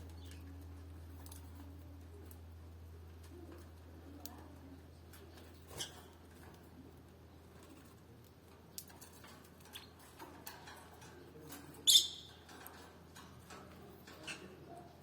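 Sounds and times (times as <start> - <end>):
bird ticks and chirps: 8.2 - 14.6.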